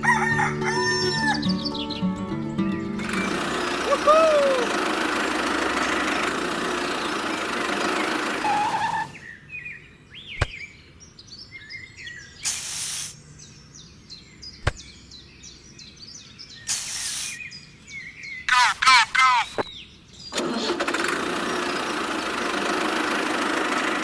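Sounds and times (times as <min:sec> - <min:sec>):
birds chirping: 0:00.0 - 0:20.4
short bursts of hiss: 0:08.4 - 0:09.3, 0:12.4 - 0:13.2, 0:16.7 - 0:17.4.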